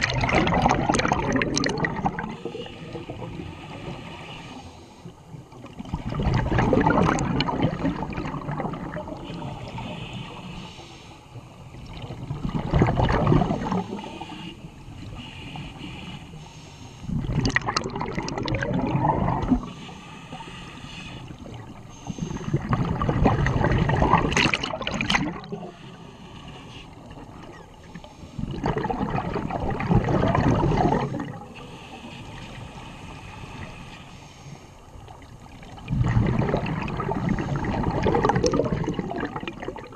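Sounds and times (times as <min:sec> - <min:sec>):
regulator bubbles gurgling: 0:00.0 - 0:03.9, 0:05.3 - 0:10.4, 0:11.7 - 0:14.3, 0:17.1 - 0:19.8, 0:21.3 - 0:25.8, 0:27.0 - 0:31.7, 0:35.0 - 0:39.9.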